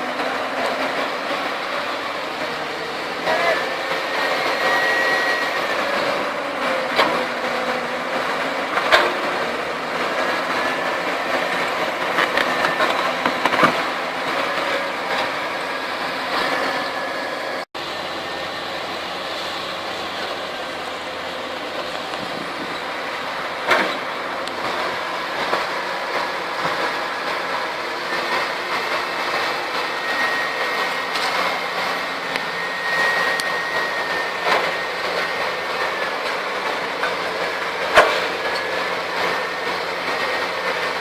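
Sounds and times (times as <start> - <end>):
heavy diesel machinery working: 0.0 - 41.0.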